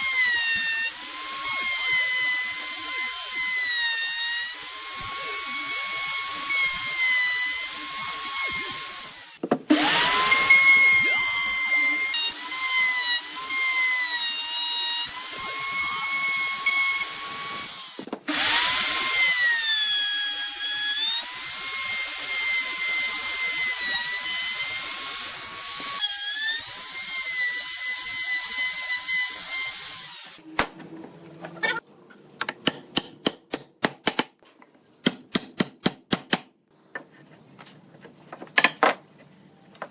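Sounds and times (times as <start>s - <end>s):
power tool cutting wood: 0.0s - 30.4s.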